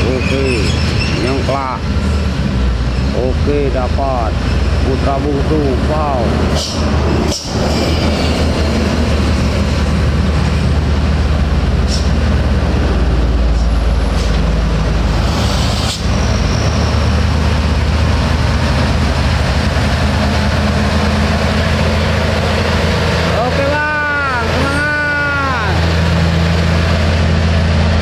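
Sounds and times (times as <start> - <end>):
diesel truck engine under load: 0.0 - 28.0.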